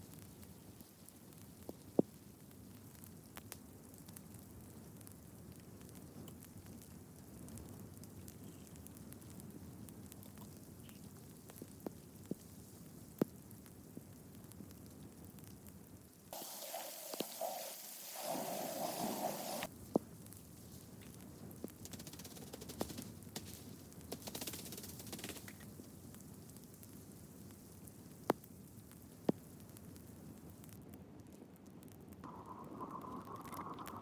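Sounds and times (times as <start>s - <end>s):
wood fire crackling: 0.0s - 34.0s
bright steady noise: 16.3s - 20.0s, 32.2s - 34.0s.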